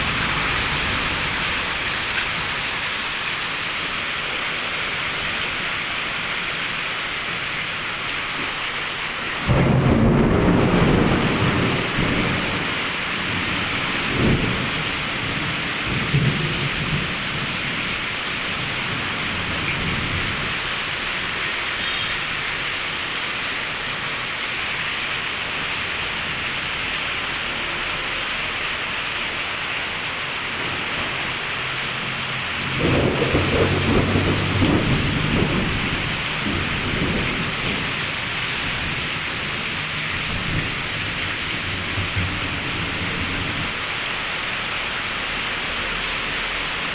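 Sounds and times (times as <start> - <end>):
thunder rumbling: 0.0 - 3.2, 9.4 - 20.5, 32.6 - 43.8
heavy rain pouring: 0.0 - 46.9.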